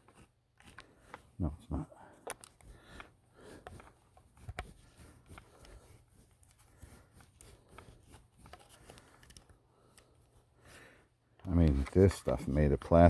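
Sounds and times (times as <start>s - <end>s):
faint handling clicks and rustles: 0.0s - 13.0s.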